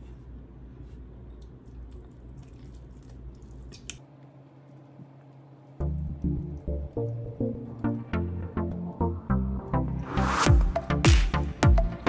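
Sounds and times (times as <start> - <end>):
steady low hum: 0.0 - 12.0
soft wet chewing clicks: 1.2 - 8.0.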